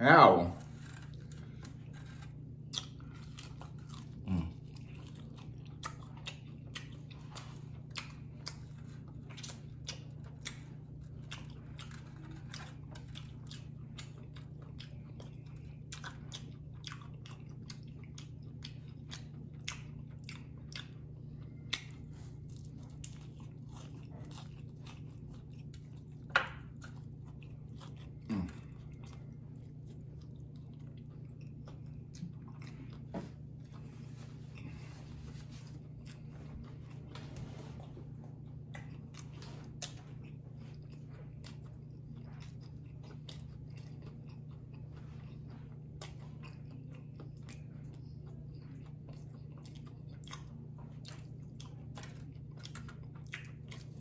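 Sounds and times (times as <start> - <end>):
chewing crispy fried chicken: 0.0 - 54.0.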